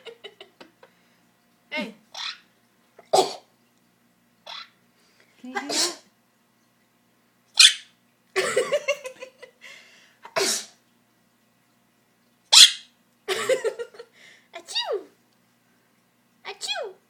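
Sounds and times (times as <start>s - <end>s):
bird mimicking a sneeze: 5.7s - 6.0s.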